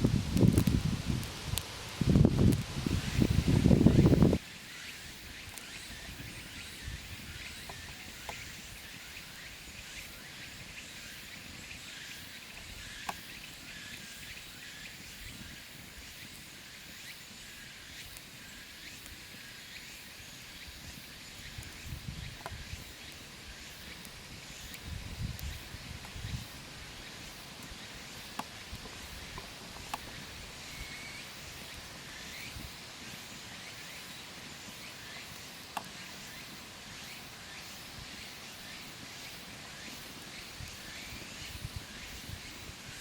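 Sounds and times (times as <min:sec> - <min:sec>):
low rumble of wind: 0:00.0 - 0:04.4, 0:20.8 - 0:27.8
steady high hiss: 0:00.0 - 0:43.0
faint clicks: 0:27.6 - 0:30.2.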